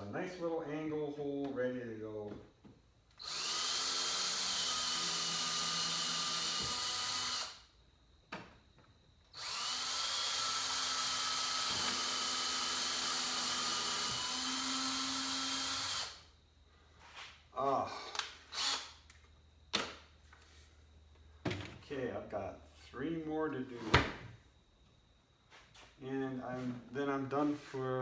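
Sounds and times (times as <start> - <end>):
power drill driving a screw: 3.2 - 7.6, 9.3 - 16.2, 18.5 - 18.9.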